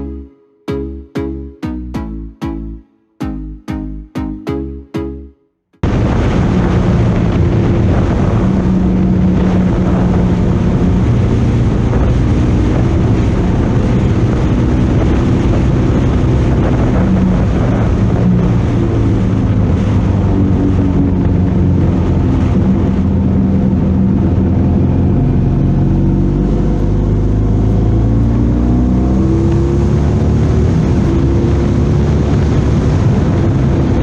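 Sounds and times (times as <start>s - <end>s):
wind noise on microphone: 5.8s - 34.0s
motorcycle engine revving: 23.1s - 34.0s.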